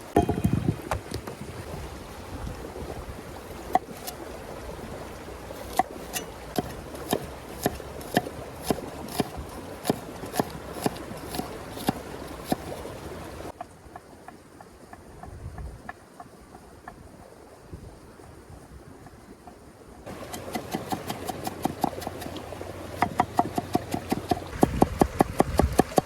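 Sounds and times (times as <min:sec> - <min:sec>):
sharp knocks: 0:00.1 - 0:01.3.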